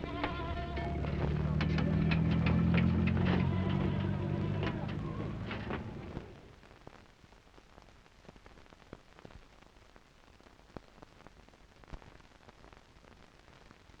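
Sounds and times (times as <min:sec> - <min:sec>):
crackling clicks: 0:00.0 - 0:09.6
faint recording hiss: 0:00.0 - 0:14.0.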